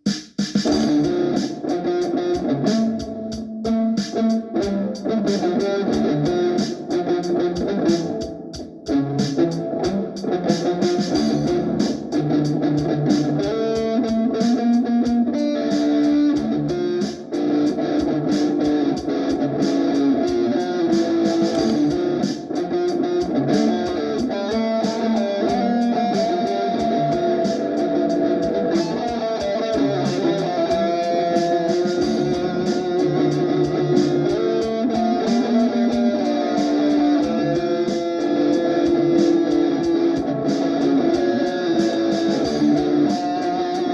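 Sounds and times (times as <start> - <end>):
drum machine beat: 0.0 - 43.9
electric guitar melody: 0.7 - 43.9.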